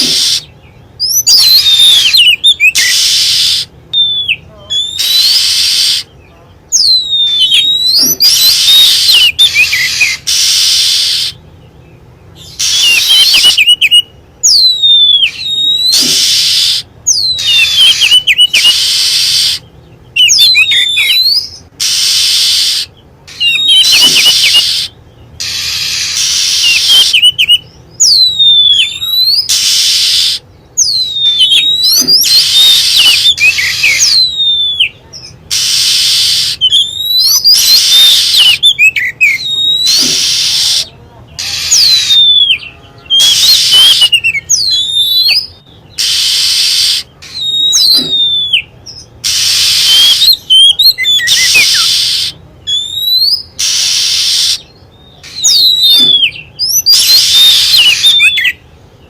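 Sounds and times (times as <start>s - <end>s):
harsh rasping bird notes: 0.0s - 6.2s, 6.8s - 11.6s, 12.2s - 58.6s
bird whistles swooping down: 49.3s - 54.7s.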